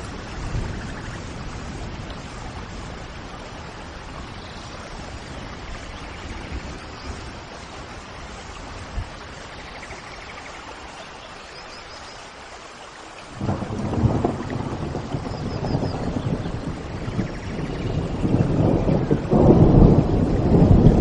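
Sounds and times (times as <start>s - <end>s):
thunder rumble: 0.0s - 9.3s, 13.3s - 21.0s
steady rain: 0.0s - 21.0s.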